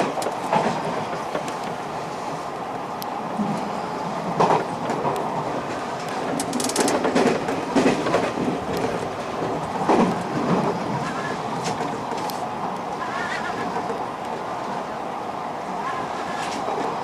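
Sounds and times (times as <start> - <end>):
clacks over rail joints: 0.0 - 1.8, 4.2 - 14.5, 15.8 - 17.0
wheels rumbling on rail: 0.0 - 17.0.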